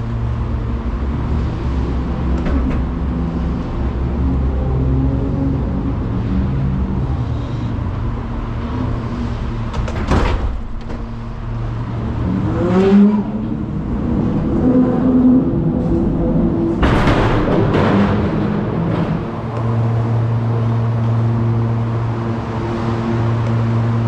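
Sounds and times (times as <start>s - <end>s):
truck engine running: 0.0s - 5.0s.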